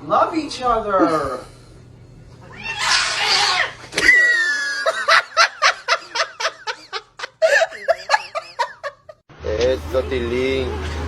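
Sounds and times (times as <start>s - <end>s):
person laughing: 4.1s - 9.2s.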